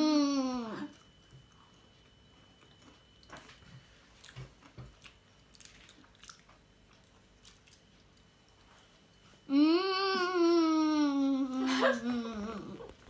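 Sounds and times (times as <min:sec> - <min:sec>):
faint chewing and mouth sounds: 0:00.7 - 0:09.5.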